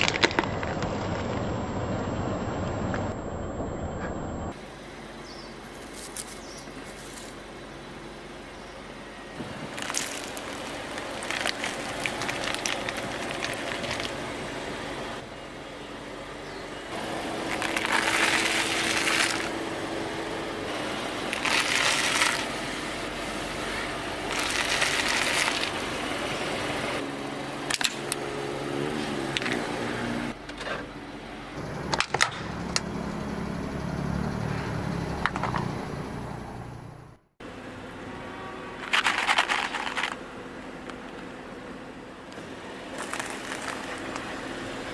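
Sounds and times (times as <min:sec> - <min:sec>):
objects crunching under wheels: 0:00.0 - 0:02.1, 0:05.7 - 0:07.4, 0:09.4 - 0:14.3, 0:17.3 - 0:19.6, 0:21.2 - 0:22.6, 0:24.2 - 0:26.1, 0:38.8 - 0:40.2, 0:42.9 - 0:44.4
car engine running slowly: 0:00.0 - 0:34.4, 0:38.8 - 0:44.9.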